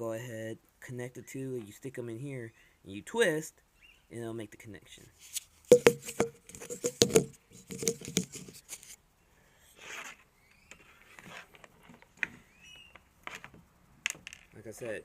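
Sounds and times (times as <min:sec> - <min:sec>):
wire and plastic rustling: 0:05.2 - 0:09.0.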